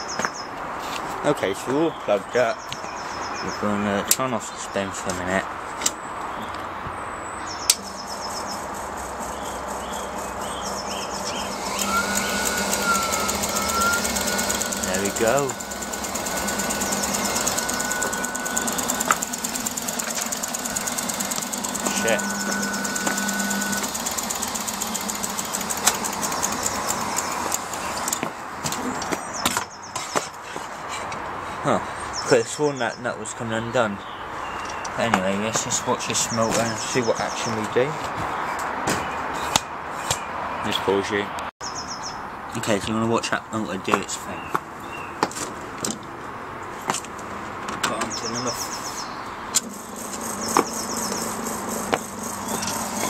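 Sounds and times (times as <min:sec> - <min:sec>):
high chirping: 0:07.2 - 0:28.2, 0:48.0 - 0:53.0
rapid metallic ticking: 0:07.7 - 0:28.3, 0:49.6 - 0:53.0
washing machine humming: 0:07.8 - 0:28.6, 0:49.6 - 0:53.0.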